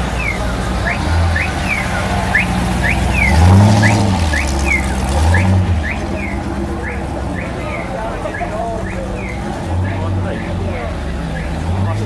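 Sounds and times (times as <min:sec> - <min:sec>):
car engine revving: 0:00.0 - 0:12.0
high rising and falling chirp: 0:00.2 - 0:09.4.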